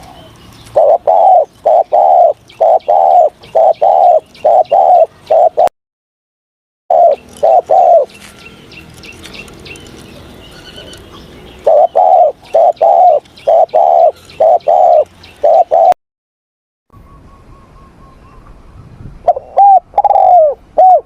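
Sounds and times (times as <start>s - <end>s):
dove cooing: 0.0s - 5.7s, 6.9s - 8.2s, 11.6s - 16.0s, 19.2s - 21.0s
small birds chirping: 0.0s - 5.7s, 6.9s - 16.0s.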